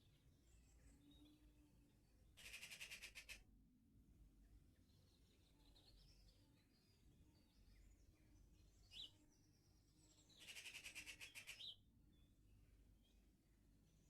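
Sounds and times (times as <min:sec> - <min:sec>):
rapid bird trill: 0:02.4 - 0:03.4, 0:10.4 - 0:11.7
songbirds singing: 0:04.7 - 0:14.0.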